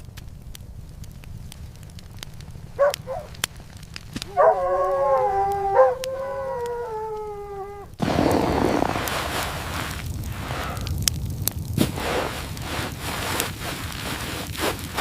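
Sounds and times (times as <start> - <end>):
dog yelping: 2.8 - 3.3, 4.3 - 7.9
dog howling: 2.8 - 3.4, 4.2 - 8.0.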